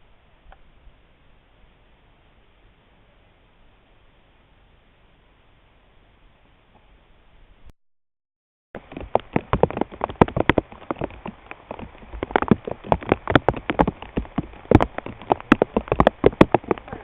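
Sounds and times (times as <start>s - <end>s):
raindrops tapping on hard surface: 8.8s - 17.0s.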